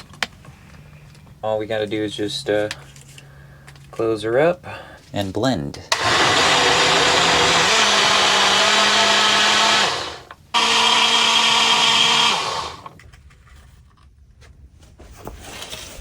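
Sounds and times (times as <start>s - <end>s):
blender running: 5.9s - 13.0s.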